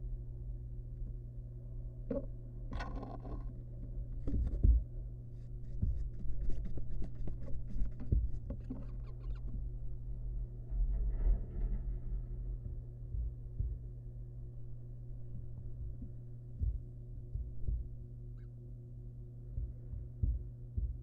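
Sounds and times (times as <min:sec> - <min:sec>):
steady low hum: 0:00.0 - 0:21.0
dull thumps: 0:04.2 - 0:04.9
owlet scratching and rustling: 0:05.4 - 0:09.6.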